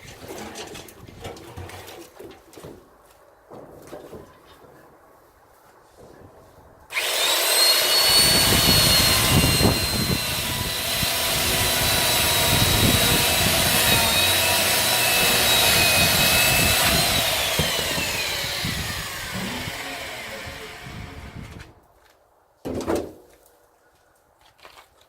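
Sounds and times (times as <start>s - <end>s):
electric chainsaw cutting wood: 6.9s - 21.7s.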